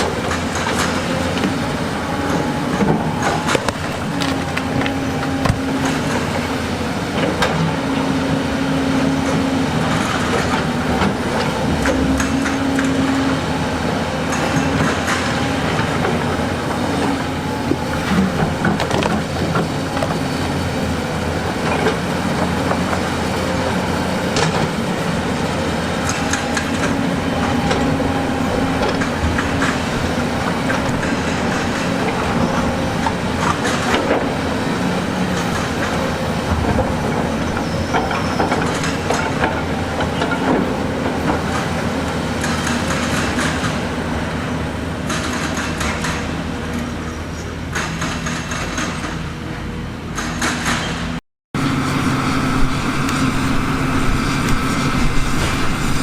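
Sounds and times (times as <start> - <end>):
diesel engine running: 0.0 - 47.2, 51.5 - 56.0
clanks of steel and rock: 45.0 - 49.3.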